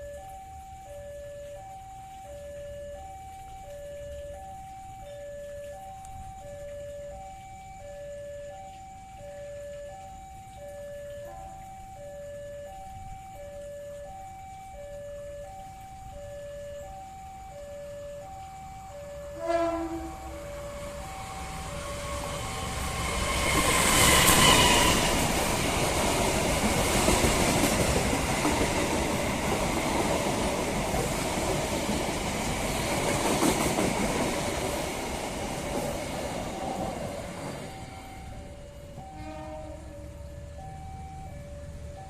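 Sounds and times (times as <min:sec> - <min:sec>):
two-tone crossing warning chime: 0:00.0 - 0:42.0
train horn: 0:19.2 - 0:25.5, 0:37.7 - 0:40.6
train wheels rumbling past: 0:19.2 - 0:41.9.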